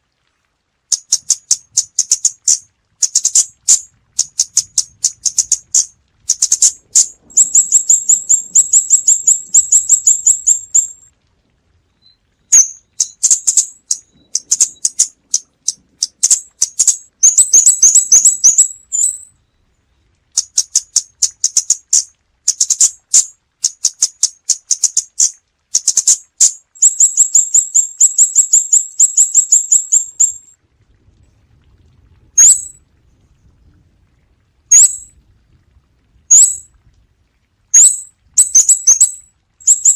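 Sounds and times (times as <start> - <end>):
bird high sharp ticking calls: 0.9 - 11.0, 12.0 - 19.3, 20.4 - 30.5, 32.4 - 32.8, 34.7 - 35.1, 36.3 - 36.6, 37.8 - 39.9.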